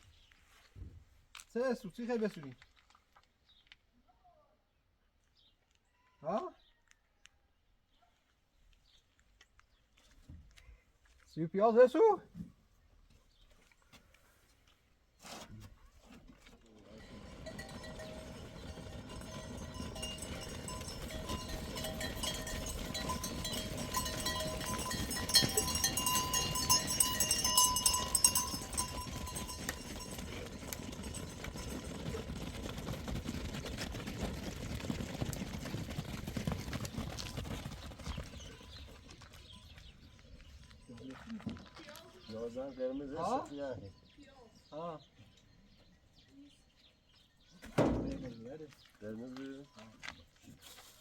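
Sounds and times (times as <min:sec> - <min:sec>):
hooves clattering: 0:16.4 - 0:43.5, 0:47.5 - 0:51.0
animal bells ringing: 0:16.9 - 0:44.8.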